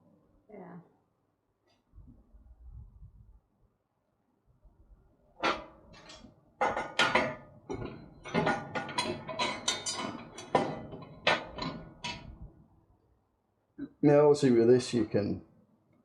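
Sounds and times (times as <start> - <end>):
sharp knocks and clatter: 5.4 - 12.6.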